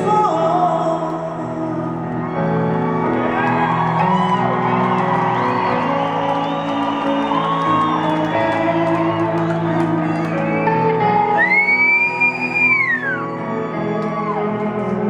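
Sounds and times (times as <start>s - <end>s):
live slow piano ballad: 0.0s - 15.0s
audience whooping and shouting: 2.4s - 10.5s, 11.4s - 15.0s.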